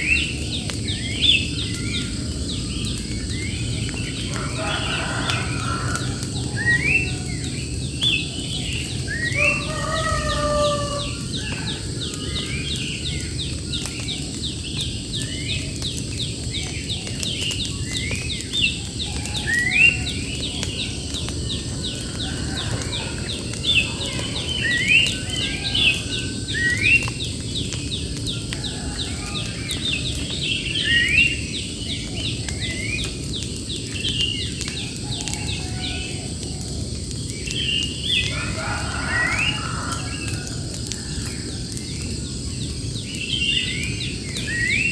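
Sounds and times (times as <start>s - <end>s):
wild birds chirping: 0.0s - 44.9s.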